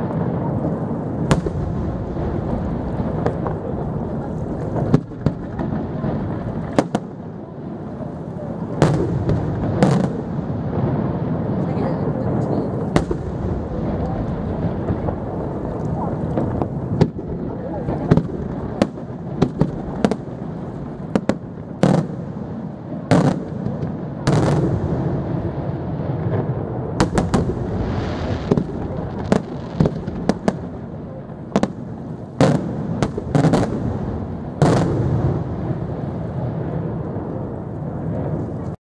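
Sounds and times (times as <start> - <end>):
firework hiss: 12.7 - 38.7.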